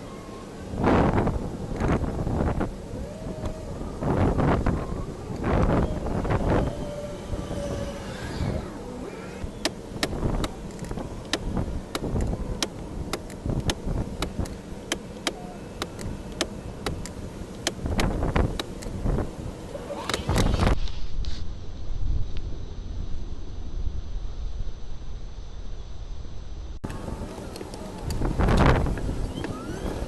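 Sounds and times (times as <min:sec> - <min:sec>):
rumbling background noise: 0:00.0 - 0:30.0
sharp irregular clicks: 0:09.6 - 0:19.0.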